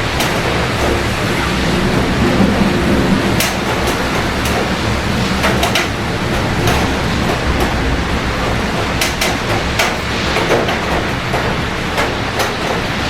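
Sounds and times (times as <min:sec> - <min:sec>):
heavy rain: 0:00.0 - 0:13.0
low rumble: 0:00.5 - 0:09.8.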